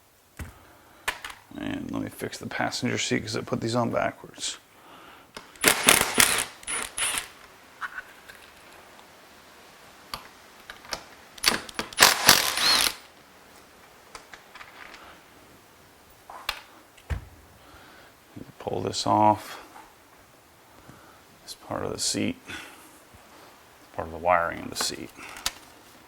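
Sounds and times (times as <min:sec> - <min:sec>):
rattling mechanical handling: 0:05.6 - 0:07.4, 0:11.4 - 0:13.1.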